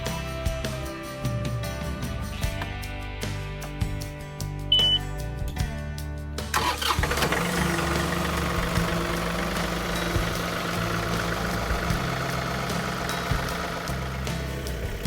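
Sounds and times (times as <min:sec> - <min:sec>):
music playing: 0:00.0 - 0:15.0
engine starting and running: 0:06.5 - 0:15.0.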